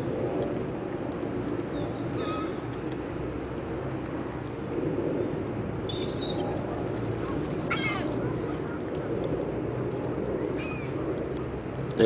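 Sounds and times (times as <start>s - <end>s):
low background rumble: 0.0s - 12.0s
birds chirping: 5.9s - 12.0s.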